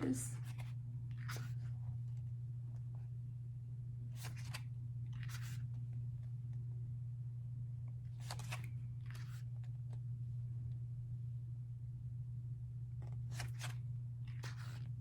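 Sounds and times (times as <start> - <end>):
low hum: 0.0 - 15.0
glossy pages turning: 0.4 - 1.7, 4.2 - 5.7, 8.2 - 9.5, 13.3 - 14.9.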